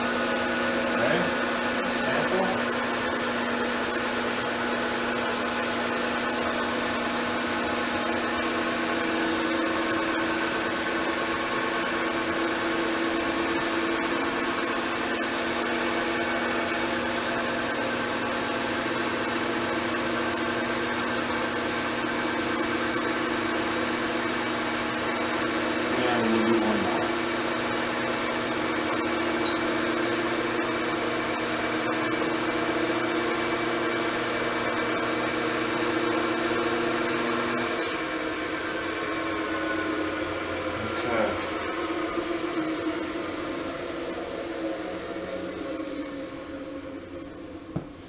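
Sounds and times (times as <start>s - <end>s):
balancing machine spinning crankshaft: 20.0s - 37.9s.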